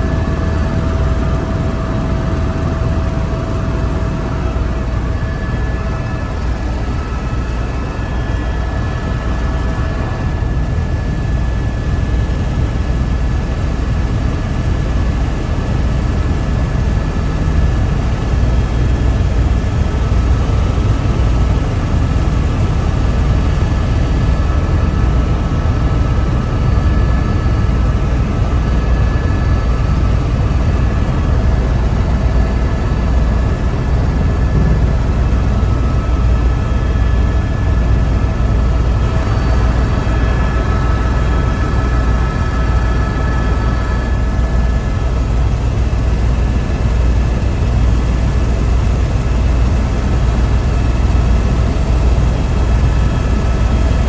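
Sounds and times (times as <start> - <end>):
helicopter engine and rotor rumble: 0.0 - 54.0
high whine: 23.4 - 44.5.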